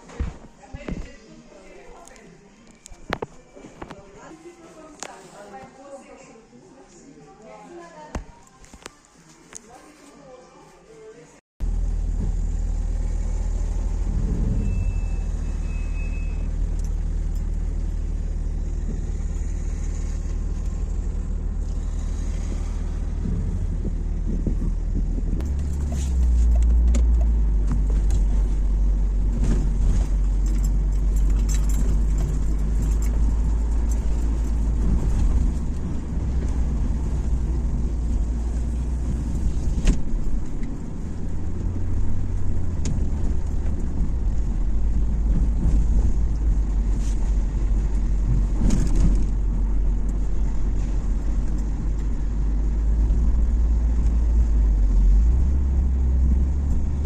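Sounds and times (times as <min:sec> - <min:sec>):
car road rumble: 0:11.6 - 0:57.0
keys jingling: 0:30.4 - 0:34.6.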